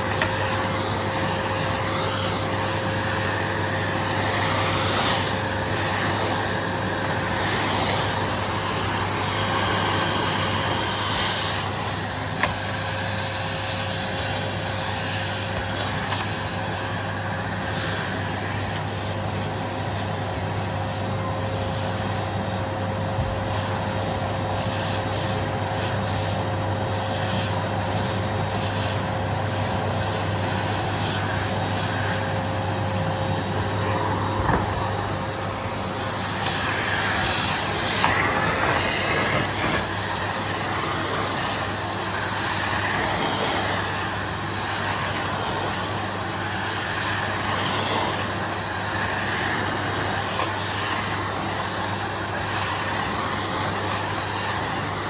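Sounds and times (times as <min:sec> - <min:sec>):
vacuum cleaner on carpet: 0:00.0 - 0:55.0.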